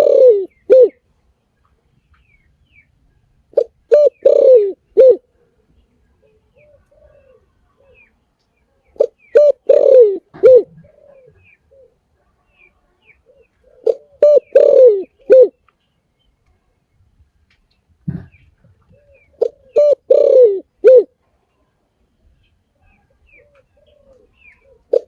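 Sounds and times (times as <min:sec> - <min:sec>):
dove cooing: 0:00.0 - 0:01.0, 0:03.5 - 0:05.4, 0:06.2 - 0:08.1, 0:09.0 - 0:12.1, 0:13.2 - 0:15.6, 0:18.1 - 0:21.2, 0:22.9 - 0:25.0.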